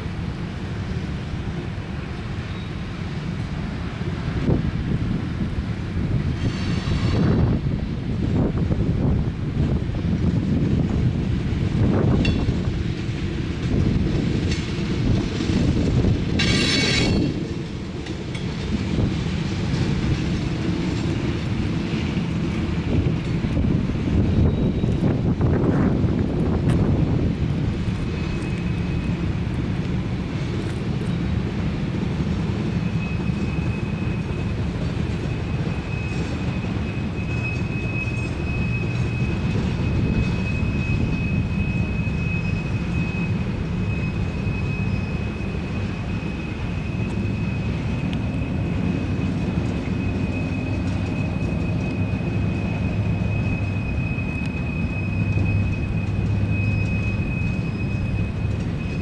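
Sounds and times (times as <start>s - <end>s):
train wheels rumbling on rails: 0.0s - 59.0s
high-pitched whine: 32.2s - 59.0s.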